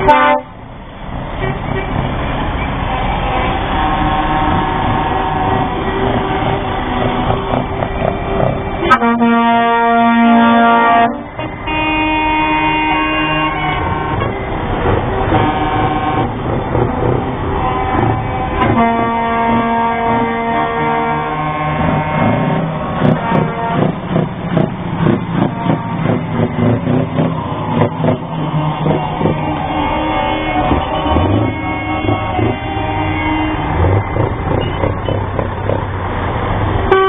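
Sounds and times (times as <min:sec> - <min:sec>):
lorry air horn blasts: 0:00.0 - 0:00.6, 0:03.0 - 0:07.6, 0:08.8 - 0:16.4, 0:17.6 - 0:24.0, 0:25.4 - 0:26.8, 0:28.8 - 0:34.9
engines rumbling: 0:00.0 - 0:37.0.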